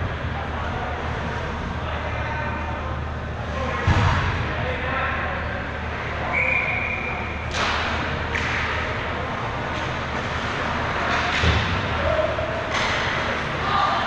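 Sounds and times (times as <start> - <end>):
skates and sticks scraping: 7.5 - 13.7.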